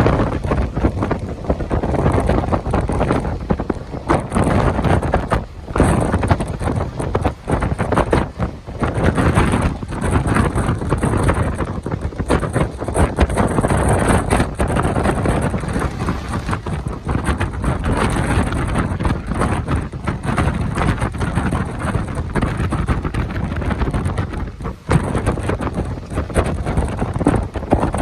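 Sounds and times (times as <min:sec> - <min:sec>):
train running: 0:00.0 - 0:28.0
wind buffeting microphone: 0:00.0 - 0:28.0.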